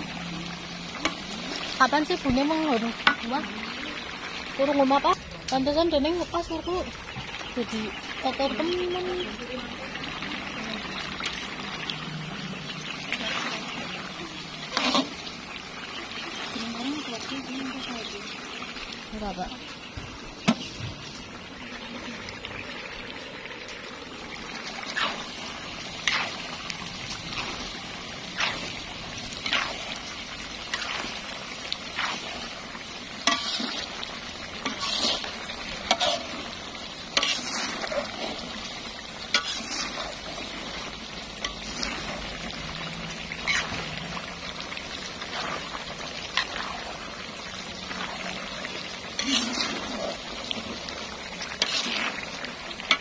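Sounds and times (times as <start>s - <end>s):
food sizzling in a pan: 0.0s - 53.0s
utensil scraping a pan: 13.1s - 15.3s, 24.9s - 31.3s, 33.2s - 38.6s, 39.2s - 40.8s, 43.4s - 44.0s, 49.0s - 50.8s, 51.4s - 53.0s.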